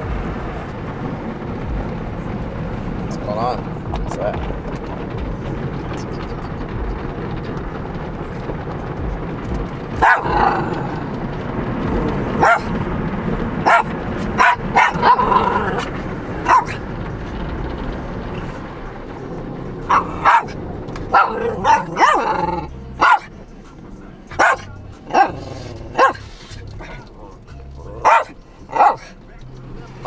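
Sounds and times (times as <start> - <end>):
car wash rushing and rumbling: 0.0 - 30.0
dog barking: 10.0 - 10.8, 12.4 - 12.7, 13.6 - 16.8, 19.9 - 23.3, 24.3 - 27.0, 27.9 - 29.2.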